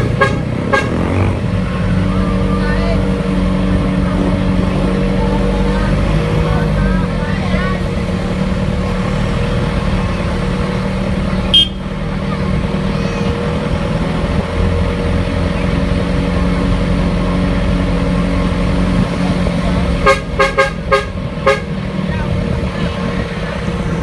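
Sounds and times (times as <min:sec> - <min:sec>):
short horn toots: 0:00.0 - 0:01.4, 0:11.5 - 0:11.9, 0:20.0 - 0:21.7
vehicle engine running: 0:00.0 - 0:24.0.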